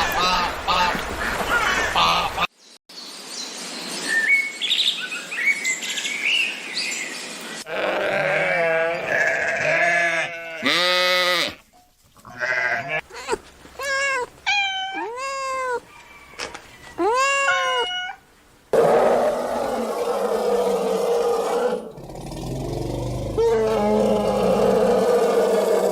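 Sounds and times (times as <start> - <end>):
goat bleating: 7.7 - 11.6, 12.2 - 15.8.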